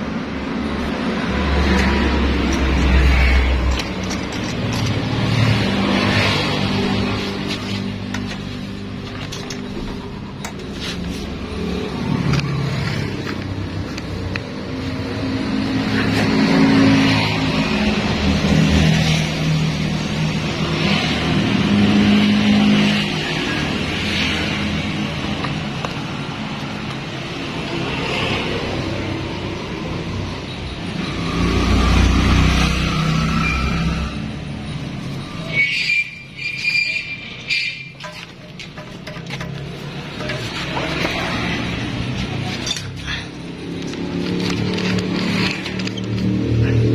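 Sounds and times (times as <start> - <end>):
scooter engine revving: 37.1 - 46.9.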